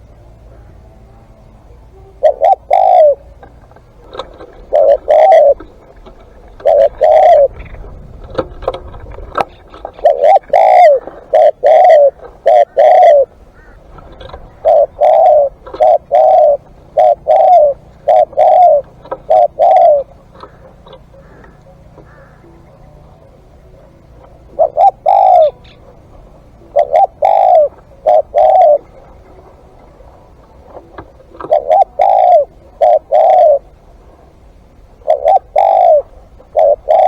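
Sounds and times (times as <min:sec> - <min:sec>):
dove cooing: 0:00.0 - 0:37.0.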